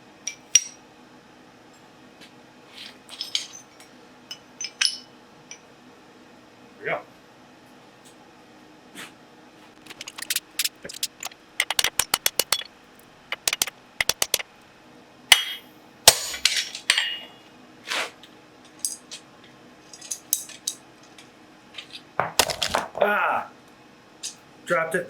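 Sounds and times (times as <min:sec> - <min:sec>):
hammer striking steel on anvil: 0:15.3 - 0:17.4.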